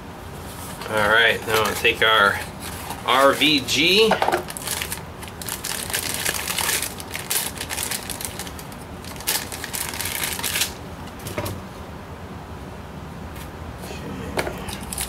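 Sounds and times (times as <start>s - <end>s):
plastic parts clicking and rustling: 14.4s - 15.0s.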